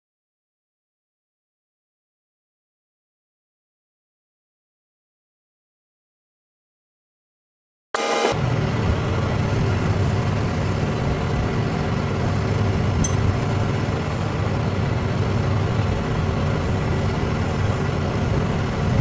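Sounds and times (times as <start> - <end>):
heavy engine running: 8.0 - 19.0.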